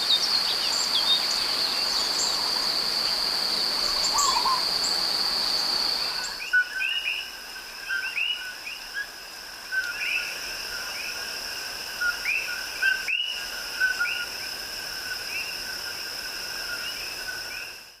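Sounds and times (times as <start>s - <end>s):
high-pitched insect drone: 0.0s - 18.0s
repeated chirping bird calls: 3.8s - 4.7s.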